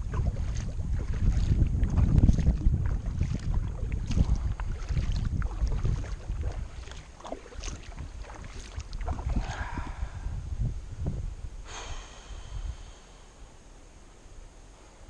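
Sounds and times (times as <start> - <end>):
paddle splashing in water: 0.0 - 9.8
wind buffeting microphone: 0.0 - 13.1.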